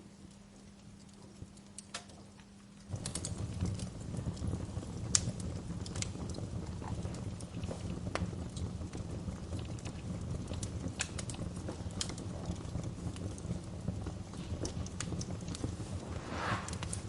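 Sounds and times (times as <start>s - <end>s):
low rumble of burning fire: 0.0s - 17.0s
wood fire crackling: 0.0s - 17.0s
fire pops: 2.8s - 17.0s
low steady hum: 15.2s - 17.0s.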